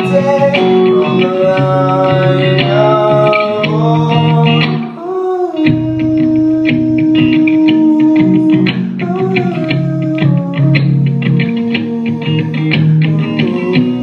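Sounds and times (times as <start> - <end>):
live rock band playing: 0.0 - 5.0.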